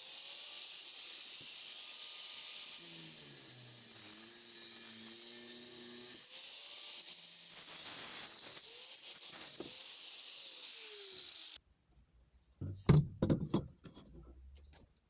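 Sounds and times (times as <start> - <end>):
angle grinder whining: 0.0 - 11.6.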